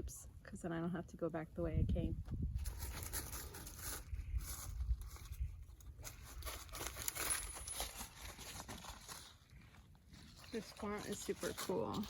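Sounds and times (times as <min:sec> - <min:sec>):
wind rumble on microphone: 0:01.4 - 0:06.7
rustling and crinkling: 0:02.3 - 0:12.0.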